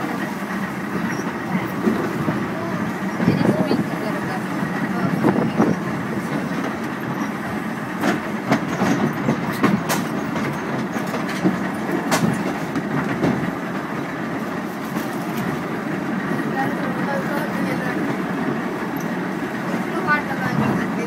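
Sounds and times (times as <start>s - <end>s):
wheels rumbling on rail: 0.0s - 21.0s
sharp clicks and knocks: 8.0s - 13.5s.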